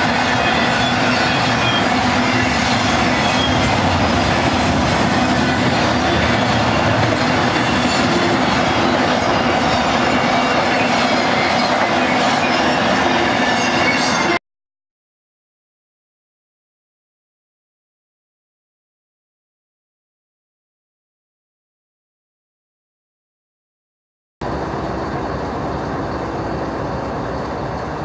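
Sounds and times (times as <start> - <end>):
steel wheels rushing on rail: 0.0 - 14.4, 24.4 - 28.0
wheels squealing: 0.0 - 14.4.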